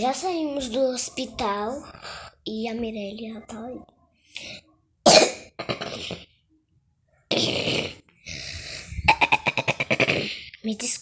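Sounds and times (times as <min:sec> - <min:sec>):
person coughing: 0:05.1 - 0:06.3, 0:08.9 - 0:10.4.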